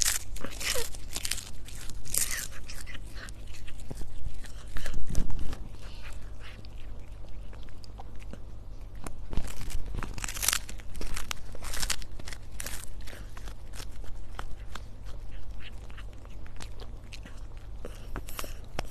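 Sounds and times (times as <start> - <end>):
cat chewing food: 0.0 - 18.9.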